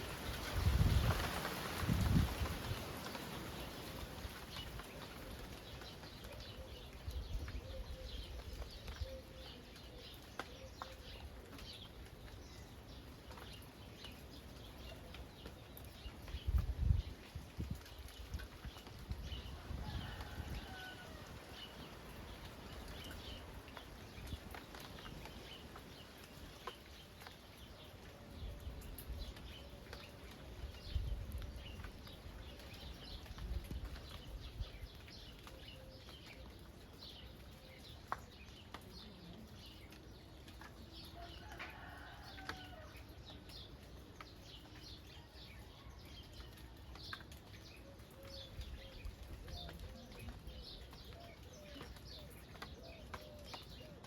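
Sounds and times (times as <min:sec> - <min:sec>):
wind gusts on microphone: 0:00.0 - 0:03.0
light rain falling: 0:00.0 - 0:54.0
raindrop ticks: 0:00.1 - 0:54.0
small birds chirping: 0:43.2 - 0:54.0.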